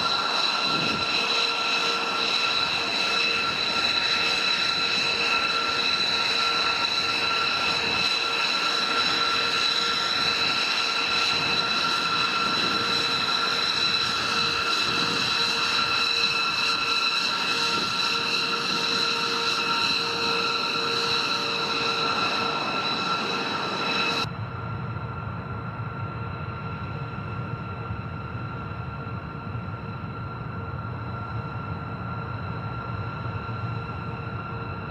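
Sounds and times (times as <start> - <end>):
jet engine whining: 0.0 - 34.9.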